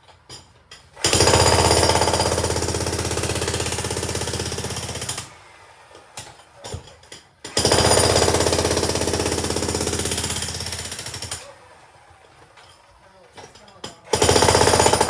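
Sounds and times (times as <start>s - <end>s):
demolition hammer breaking concrete: 1.0s - 5.3s, 6.2s - 11.5s, 13.4s - 15.0s.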